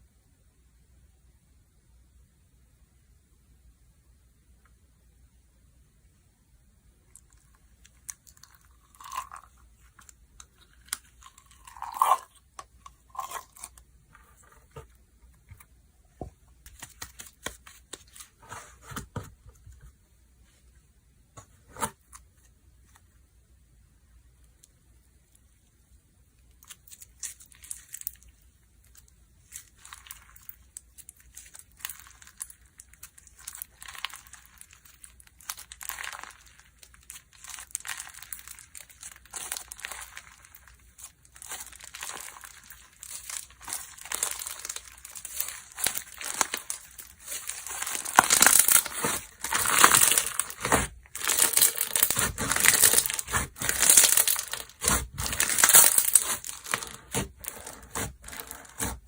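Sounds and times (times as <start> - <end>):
slime crackling and popping: 26.5 - 59.0.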